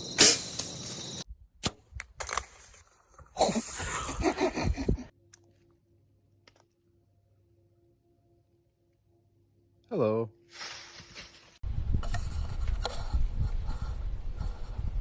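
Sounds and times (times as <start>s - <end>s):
crickets chirping: 0.0s - 1.3s.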